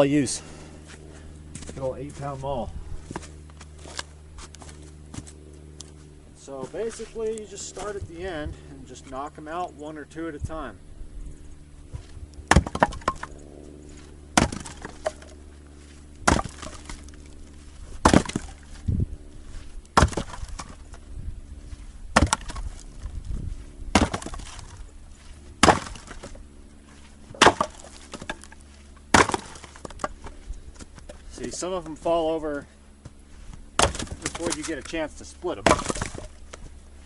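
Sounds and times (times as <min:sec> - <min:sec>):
maul splitting wood: 0:03.1 - 0:05.4, 0:11.9 - 0:13.4, 0:14.0 - 0:15.4, 0:16.1 - 0:18.9, 0:19.6 - 0:21.0, 0:22.1 - 0:23.1, 0:23.9 - 0:37.0.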